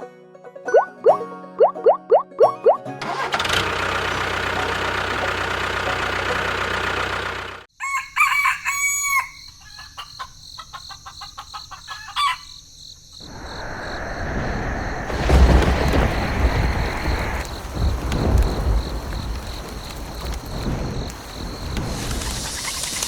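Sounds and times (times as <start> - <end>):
rooster crowing: 7.7 - 12.6
noisy rumble: 13.2 - 23.0
noisy rush: 13.2 - 23.0.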